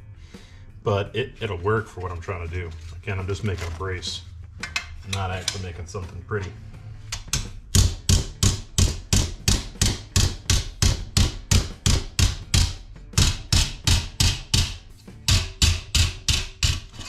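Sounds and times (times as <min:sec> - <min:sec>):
hammer striking sheet steel: 0:07.2 - 0:17.0.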